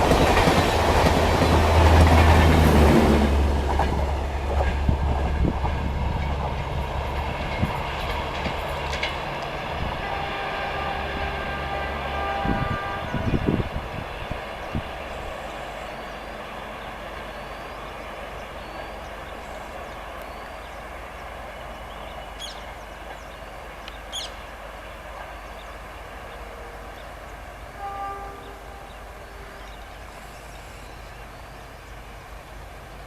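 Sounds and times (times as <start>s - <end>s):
train rumbling past: 0.0s - 33.0s
birds chirping: 6.9s - 32.7s.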